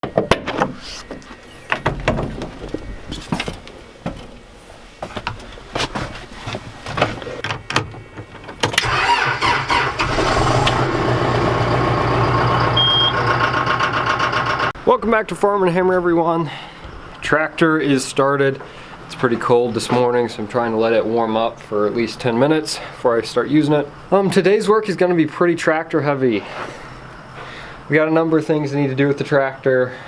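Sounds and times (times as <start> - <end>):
tractor engine starting and idling: 8.6 - 14.8
short high beep: 12.8 - 13.2.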